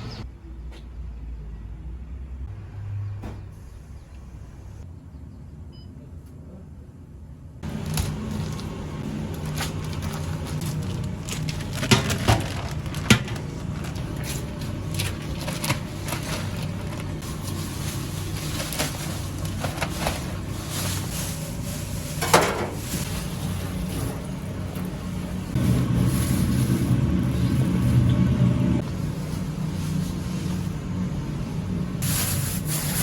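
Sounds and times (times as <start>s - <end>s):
kitchen knocks and clatters: 22.2s - 22.9s
low hum: 22.8s - 32.0s.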